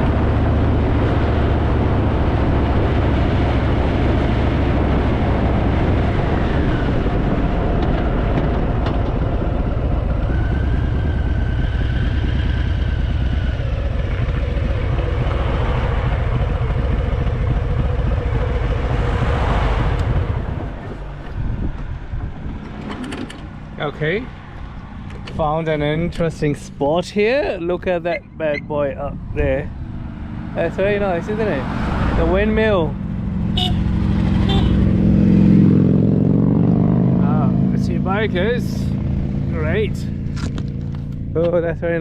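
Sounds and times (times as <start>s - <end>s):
wind noise on microphone: 0.0s - 17.4s, 18.2s - 23.5s
motorcycle engine rumble: 0.0s - 42.0s.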